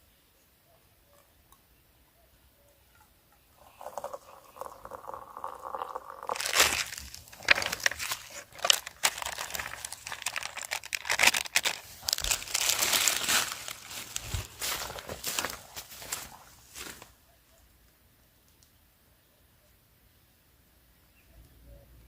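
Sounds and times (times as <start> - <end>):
soft steady hiss: 0.0 - 22.0
sheet material crumpling: 6.3 - 17.1.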